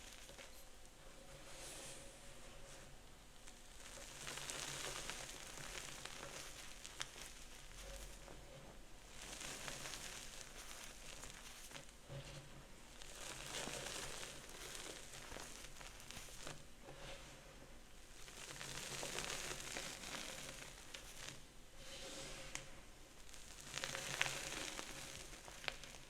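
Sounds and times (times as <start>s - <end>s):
chalk being crushed: 13.0s - 16.7s.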